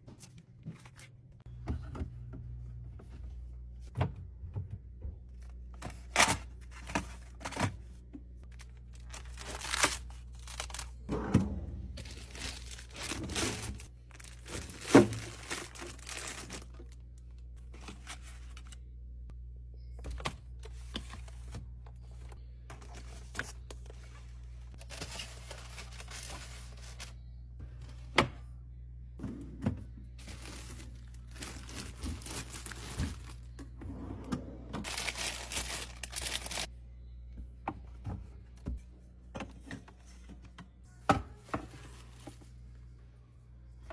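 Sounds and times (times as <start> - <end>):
food packaging crinkling and tearing: 8.4 - 11.1, 12.0 - 17.0, 30.2 - 33.5, 34.8 - 36.7.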